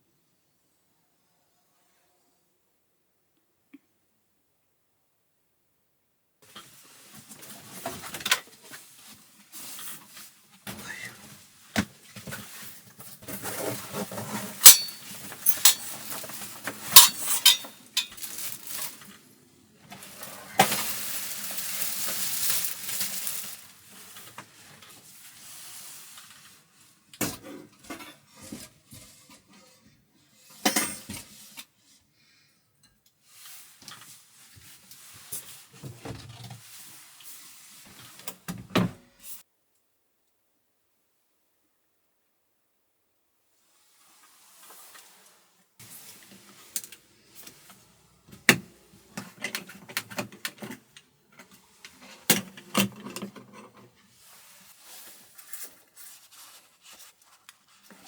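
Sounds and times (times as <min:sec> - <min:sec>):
dishes and utensils clinking: 0:14.6 - 0:18.3.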